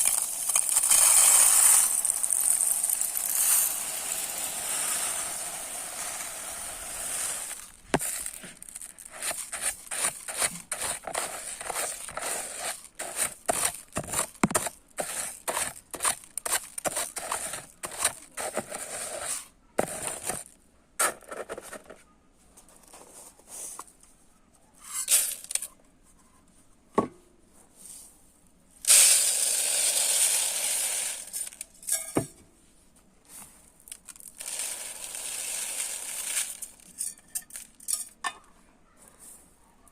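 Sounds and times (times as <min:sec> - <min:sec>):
stream of rice pouring: 0:00.0 - 0:14.2, 0:28.9 - 0:31.6, 0:33.9 - 0:36.8
rice grains rustling and clicking: 0:00.0 - 0:18.9, 0:33.2 - 0:38.0.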